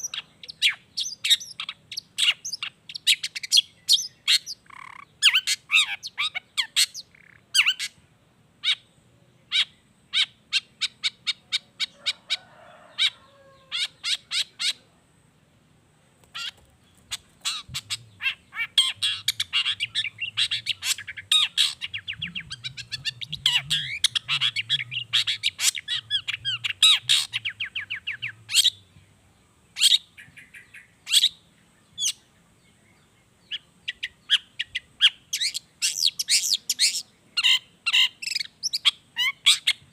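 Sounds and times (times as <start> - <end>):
shrike singing: 16.3 - 29.0.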